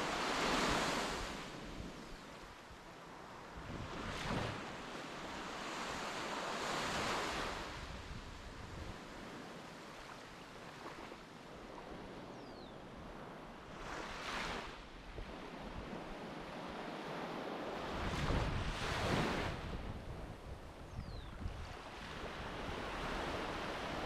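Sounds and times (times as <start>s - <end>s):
sea waves washing on beach: 0.0s - 2.0s
wind rumbling on microphone: 3.4s - 6.1s, 11.7s - 24.0s.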